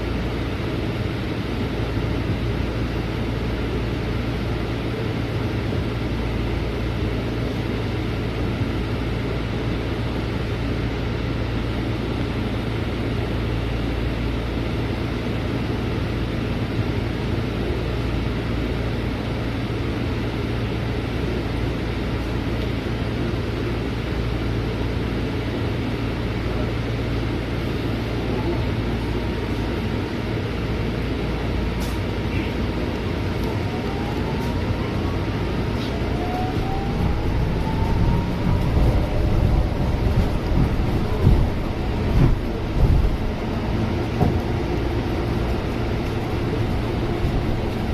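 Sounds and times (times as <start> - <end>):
bus engine drone: 0.0 - 47.9
road noise: 0.0 - 47.9
faint rising whines: 33.4 - 42.3.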